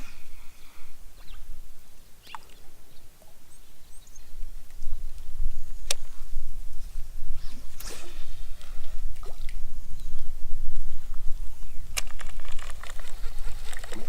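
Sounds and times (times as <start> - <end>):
faint high bird chirps: 0.0 - 1.5, 2.2 - 4.4
wind rumbling on microphone: 0.0 - 14.0
sharp click: 5.8 - 6.1.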